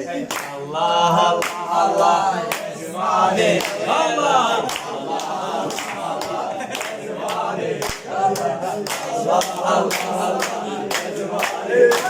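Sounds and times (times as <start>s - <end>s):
men singing together: 0.0s - 12.0s
hand claps: 0.2s - 0.6s, 1.4s - 1.6s, 3.6s - 3.9s, 4.6s - 12.0s.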